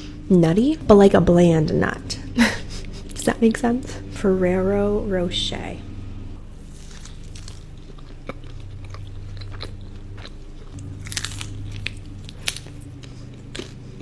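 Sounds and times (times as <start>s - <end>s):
person chewing cookie: 6.6s - 14.0s.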